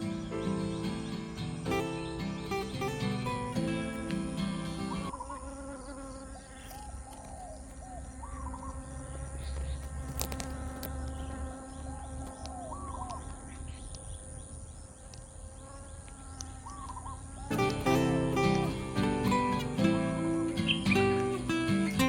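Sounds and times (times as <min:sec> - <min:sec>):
insect buzz: 0:00.0 - 0:22.0
animal calls: 0:04.7 - 0:14.6.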